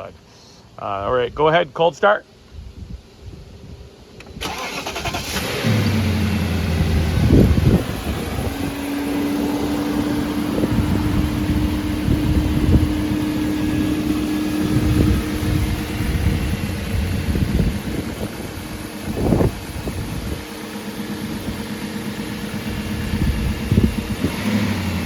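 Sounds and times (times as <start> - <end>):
starter motor cranking: 4.2 - 9.7
car engine revving and idling: 4.5 - 25.0.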